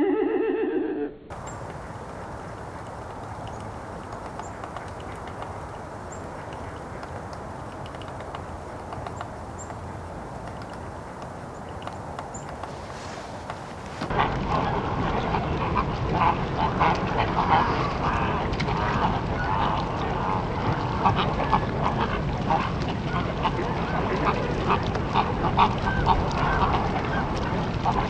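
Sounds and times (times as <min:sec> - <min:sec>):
many birds calling: 0:01.3 - 0:14.1
steady low rumble: 0:01.3 - 0:28.0.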